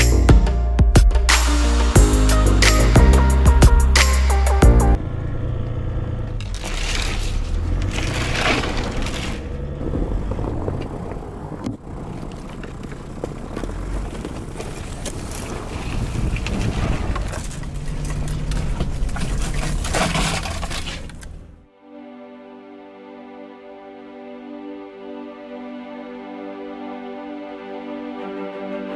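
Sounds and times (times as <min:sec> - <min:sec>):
vehicle rumbling: 0:02.0 - 0:21.7.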